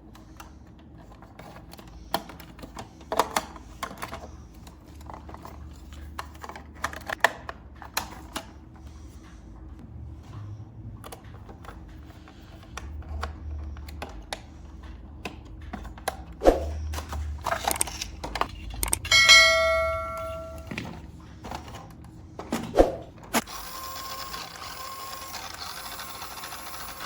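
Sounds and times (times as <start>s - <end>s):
hands handling plastic toy parts: 17.0s - 19.2s
bell-like chime: 19.1s - 20.8s.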